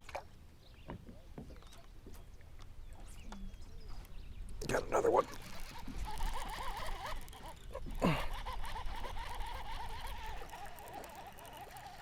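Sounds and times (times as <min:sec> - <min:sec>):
fishing reel whining: 0:05.2 - 0:12.0.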